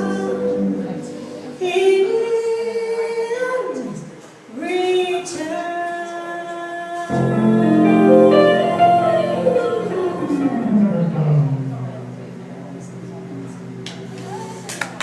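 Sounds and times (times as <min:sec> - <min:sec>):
guitar: 0:00.0 - 0:02.2, 0:07.1 - 0:15.0
woman singing jazz: 0:07.1 - 0:11.2
bass: 0:07.1 - 0:15.0.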